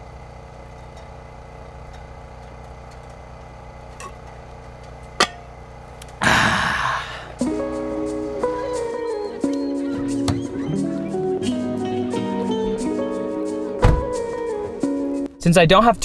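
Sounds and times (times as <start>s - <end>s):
vehicle engine idling: 0.0s - 6.2s.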